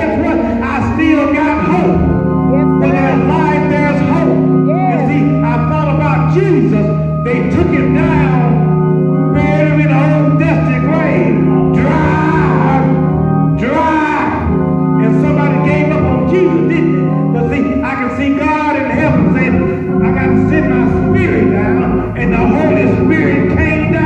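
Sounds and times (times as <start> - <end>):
organ holding sustained chords: 0.0 - 24.0
person singing: 1.6 - 5.8.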